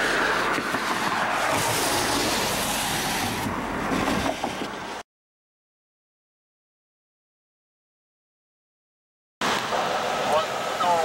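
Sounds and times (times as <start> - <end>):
train wheels rolling on rails: 0.0 - 5.0.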